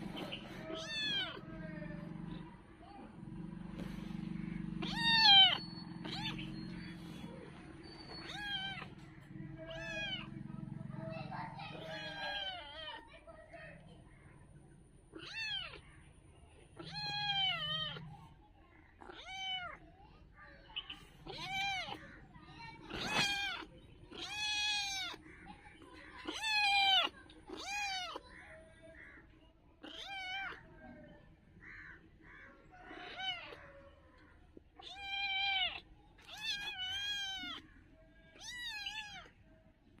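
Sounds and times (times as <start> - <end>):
kitten meowing: 0.6 - 1.5, 4.8 - 6.8, 8.1 - 9.0, 9.6 - 10.3, 11.7 - 13.0, 15.1 - 15.8, 16.8 - 18.1, 19.0 - 19.8, 21.2 - 22.0, 22.9 - 25.2, 26.2 - 28.2, 29.8 - 30.7, 32.9 - 33.8, 34.8 - 37.6, 38.3 - 39.3.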